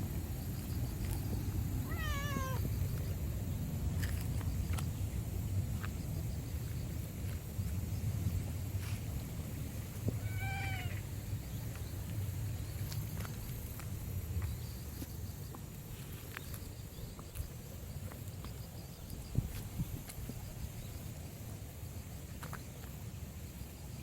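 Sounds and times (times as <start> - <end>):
cat meowing: 1.8 - 2.6, 10.2 - 11.0.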